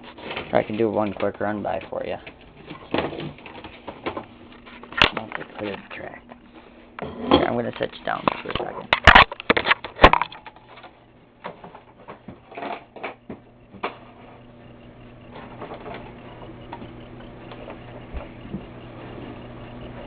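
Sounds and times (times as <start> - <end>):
low electrical hum: 0.0 - 20.0
camera being set down: 8.3 - 10.8.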